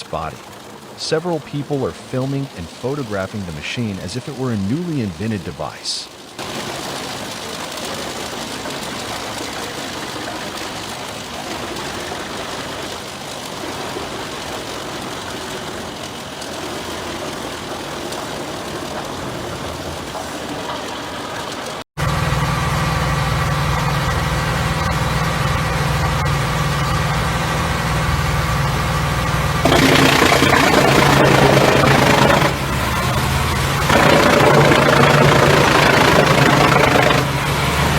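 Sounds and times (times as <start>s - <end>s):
heavy machine engine drone: 18.1s - 37.9s
wood chipper chipping trunks: 29.5s - 37.9s.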